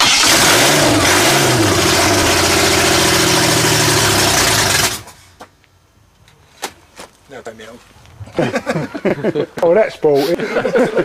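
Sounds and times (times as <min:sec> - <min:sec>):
loud engine revving: 0:00.0 - 0:05.1.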